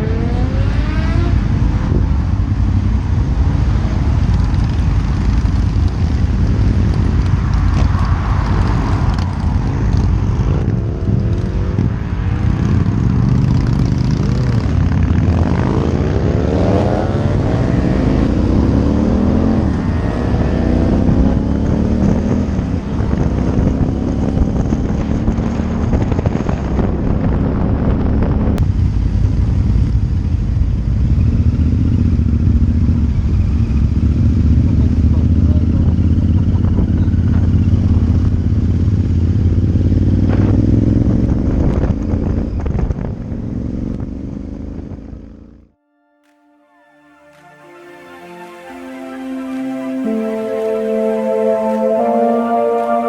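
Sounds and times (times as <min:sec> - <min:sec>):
wind rushing: 0:00.0 - 0:28.6
motorcycle engine revving: 0:00.0 - 0:45.8.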